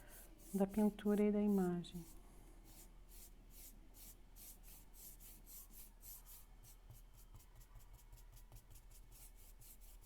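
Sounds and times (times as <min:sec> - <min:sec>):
paintbrush strokes swishing: 0:00.1 - 0:06.4.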